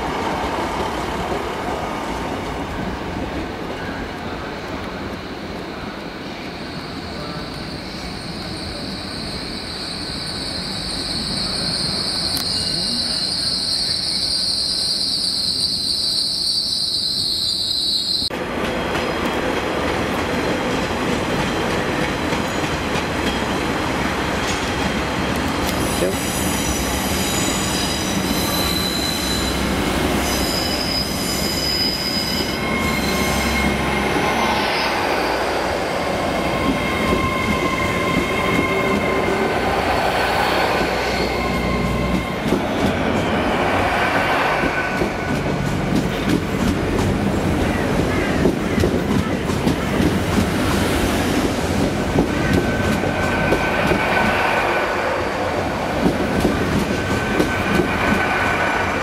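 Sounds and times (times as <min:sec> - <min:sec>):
wheel squeal: 0:06.8 - 0:18.3, 0:26.2 - 0:35.3.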